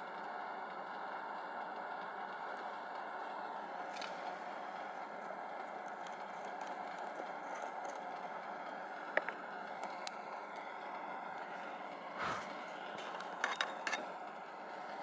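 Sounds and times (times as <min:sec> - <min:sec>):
steady rushing noise: 0:12.2 - 0:12.7.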